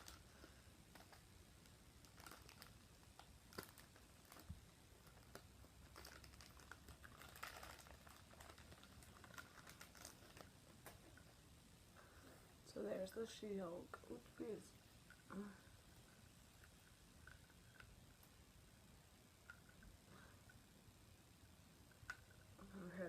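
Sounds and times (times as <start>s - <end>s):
toy packaging clicks and rustles: 0.0s - 11.4s, 16.0s - 18.4s.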